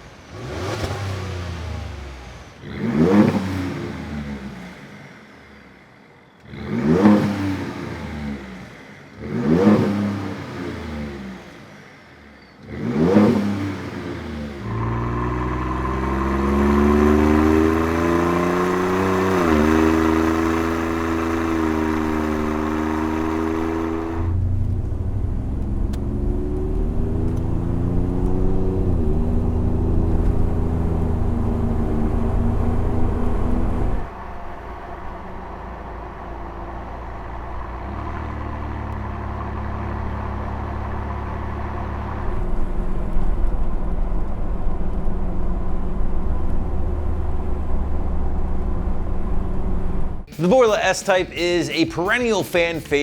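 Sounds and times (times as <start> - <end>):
truck engine revving: 12.7 - 34.1.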